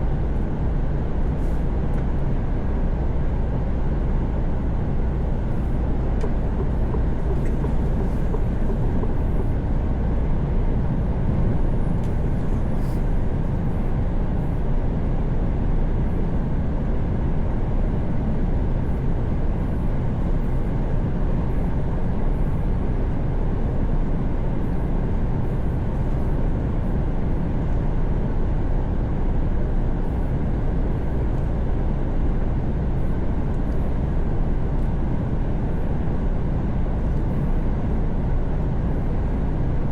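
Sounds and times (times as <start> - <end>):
truck engine drone: 0.5 - 14.6.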